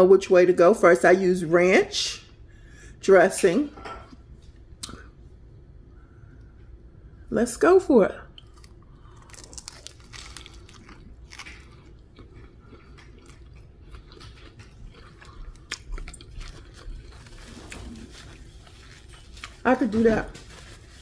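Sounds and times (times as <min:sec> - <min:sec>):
person chewing crunchy food: 0:08.4 - 0:19.7.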